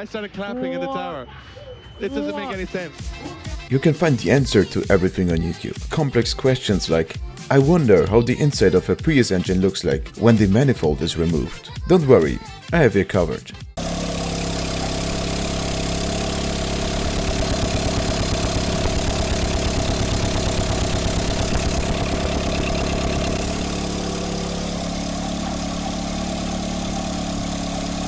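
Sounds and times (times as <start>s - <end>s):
car engine idling: 13.8s - 28.0s.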